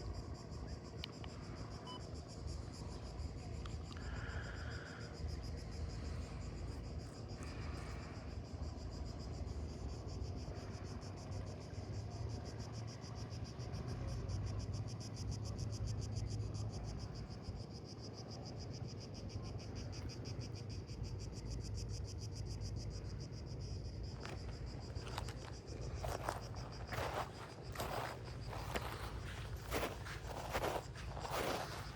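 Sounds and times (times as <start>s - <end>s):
cicadas buzzing: 0.0s - 31.9s
footsteps: 24.2s - 31.9s.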